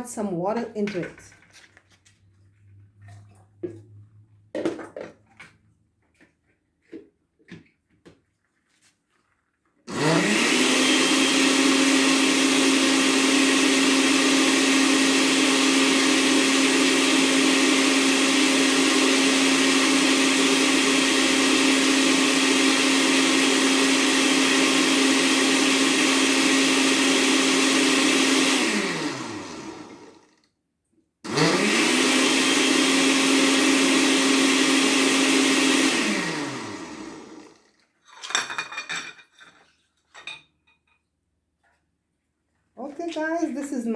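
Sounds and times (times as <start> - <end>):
blender running: 9.9 - 30.5, 31.3 - 37.8.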